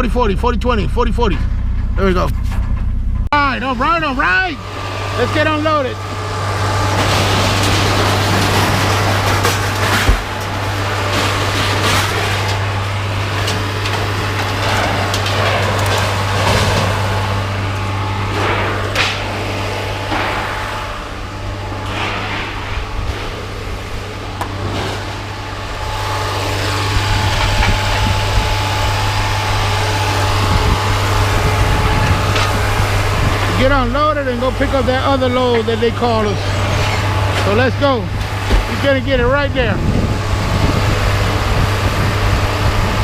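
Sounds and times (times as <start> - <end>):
truck engine idling: 0.0 - 43.0
scrap metal clanking and scraping: 1.3 - 3.3, 6.7 - 28.4.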